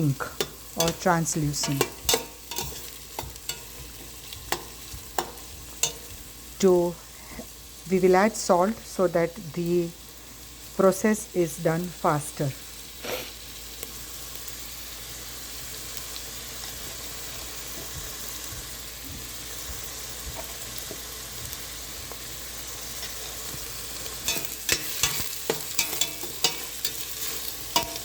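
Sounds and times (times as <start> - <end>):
onions sizzling in oil: 0.0 - 28.0
spoon scraping a pot: 0.4 - 6.1, 24.2 - 28.0.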